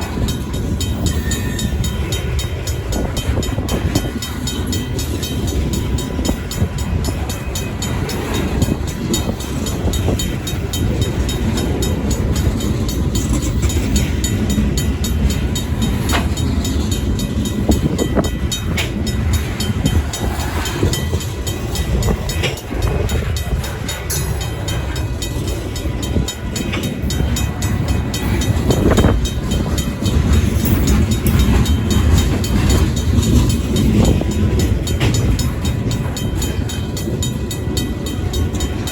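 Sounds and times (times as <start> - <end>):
freight train cars rumbling: 0.0 - 38.9
train wheel clicks: 0.0 - 38.9
wheel squeals: 0.9 - 1.9.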